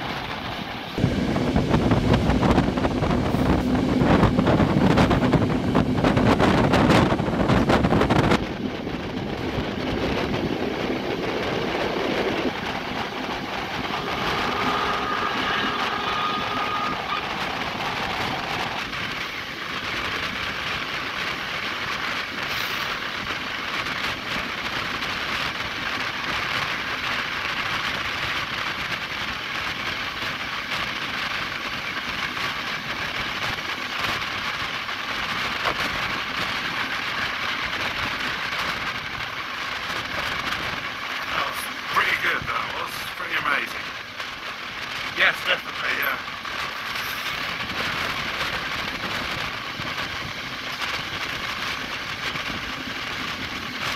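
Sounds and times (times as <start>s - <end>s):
wind rushing: 0.0s - 22.4s
train wheels on rails: 0.0s - 53.9s.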